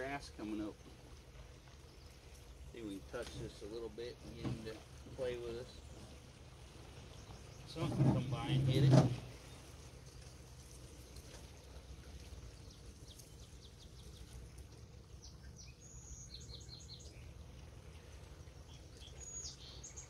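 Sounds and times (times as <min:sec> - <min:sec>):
faint bird chirps: 0:12.4 - 0:20.0.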